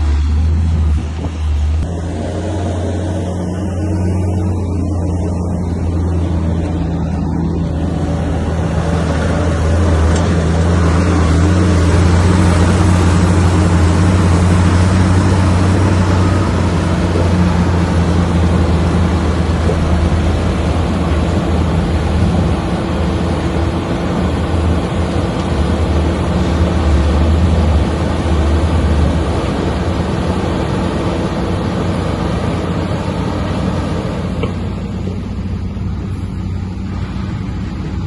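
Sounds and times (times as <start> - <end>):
diesel engine running under work: 0.0 - 38.0
rough mechanical noise: 0.0 - 38.0.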